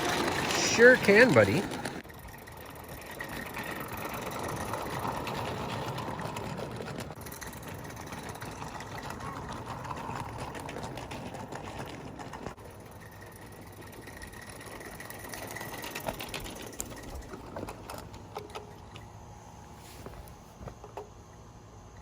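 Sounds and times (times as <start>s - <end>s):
small wheels rattling: 0.0s - 21.9s
model steam locomotive chuffing: 0.0s - 22.0s.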